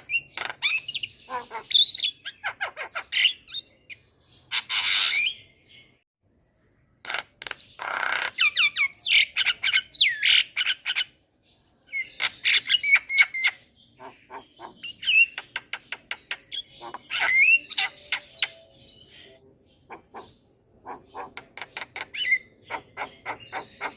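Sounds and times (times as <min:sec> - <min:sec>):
myna bird singing: 0:00.0 - 0:23.9.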